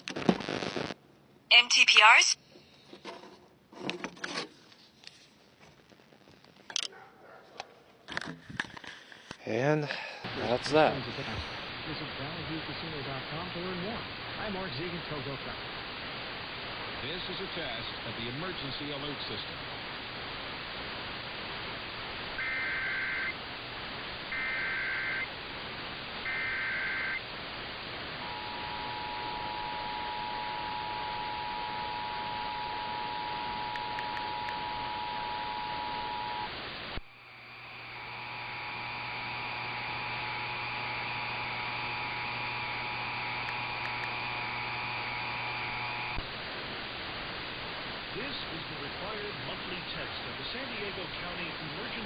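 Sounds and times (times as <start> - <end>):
radio hiss: 0.0 - 2.4, 8.8 - 52.0.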